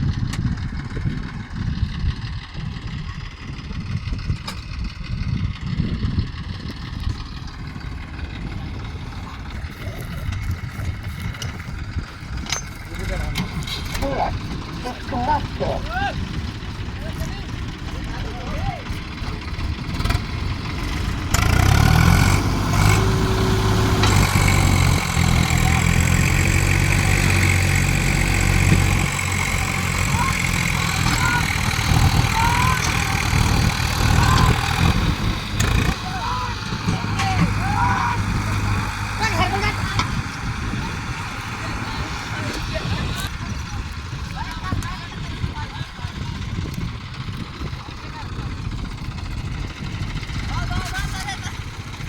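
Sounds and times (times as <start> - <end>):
tractor diesel engine throbbing: 0.0 - 52.0.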